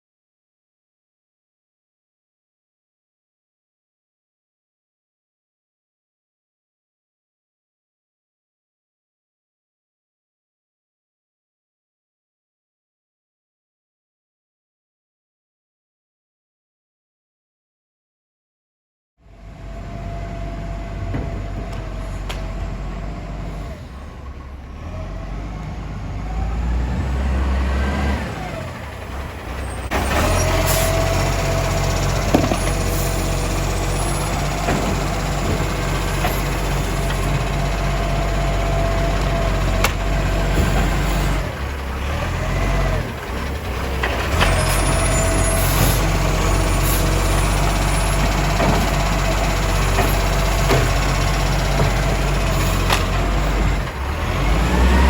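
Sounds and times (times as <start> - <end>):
garbage truck engine: 19.3 - 55.0.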